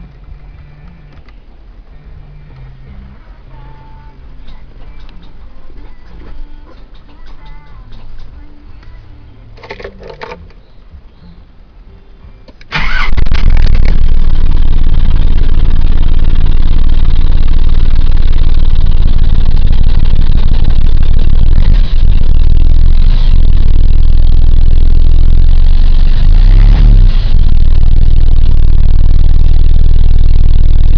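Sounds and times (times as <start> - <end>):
truck engine cranking and running: 12.6 - 30.9.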